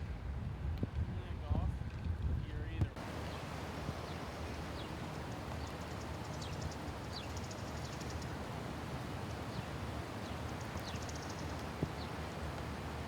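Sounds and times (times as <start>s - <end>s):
birds chirping: 3.0s - 13.0s
outdoor hiss: 3.0s - 13.0s.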